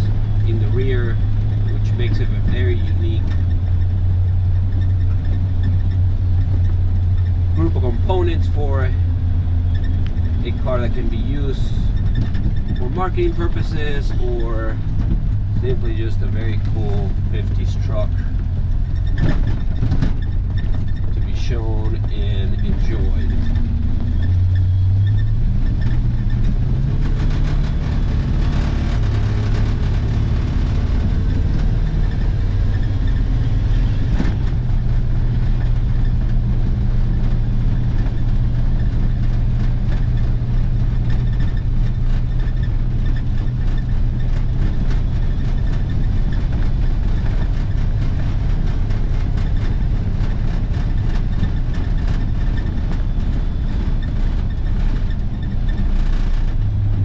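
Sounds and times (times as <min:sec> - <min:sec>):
road noise: 0:00.0 - 0:57.0
truck engine running: 0:00.0 - 0:57.0.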